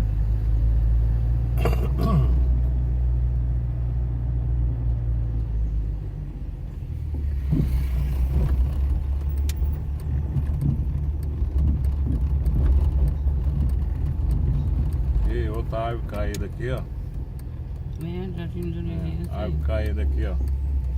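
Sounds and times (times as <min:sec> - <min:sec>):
car engine and road rumble: 0:00.0 - 0:20.9
light knocks and rattles: 0:07.0 - 0:15.4.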